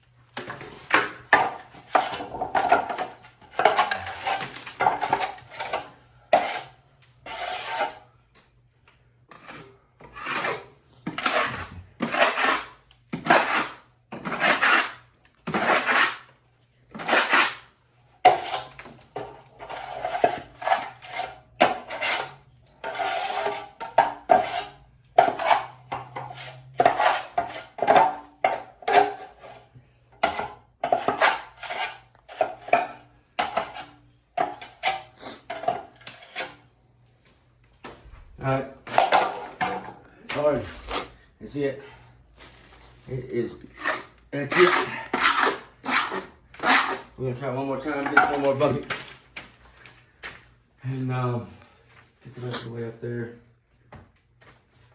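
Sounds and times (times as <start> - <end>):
trowel scraping plaster wall: 0.4 - 8.1, 9.3 - 36.7, 43.1 - 48.8.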